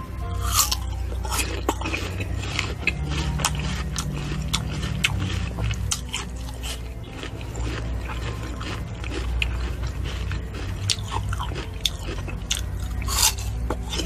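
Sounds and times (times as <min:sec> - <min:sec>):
crunchy fruit chewing: 0:00.3 - 0:14.0.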